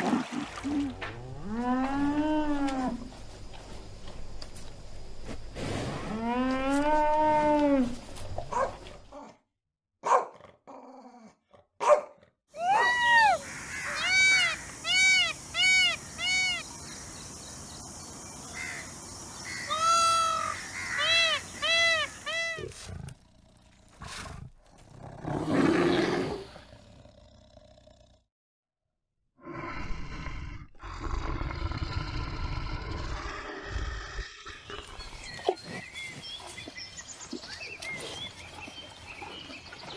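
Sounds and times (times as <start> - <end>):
peacock cries: 12.6 - 16.7, 19.5 - 22.7
bear growling: 22.6 - 28.2, 29.4 - 36.1.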